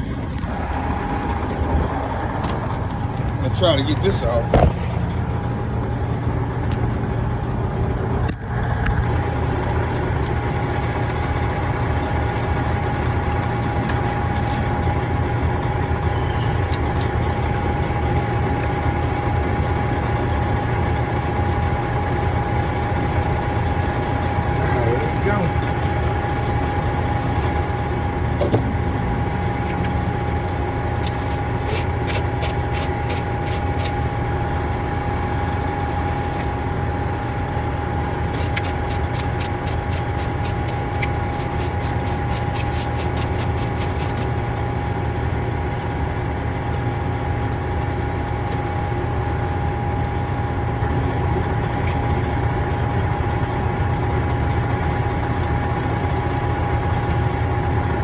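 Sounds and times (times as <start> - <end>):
constant whine: 0.0 - 58.0
idling engine drone: 0.0 - 58.0
rapid clicking: 38.0 - 44.6.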